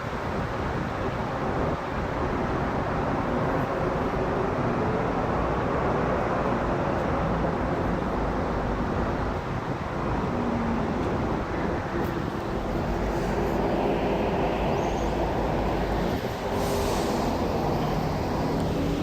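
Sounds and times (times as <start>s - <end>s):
jet airliner roaring overhead: 10.2s - 19.0s.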